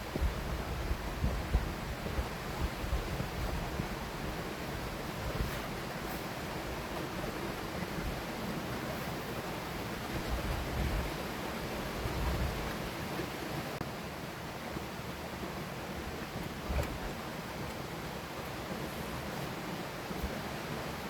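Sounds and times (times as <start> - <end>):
wind gusts on microphone: 0.0 - 8.6, 9.9 - 13.0
river rushing: 0.0 - 21.0.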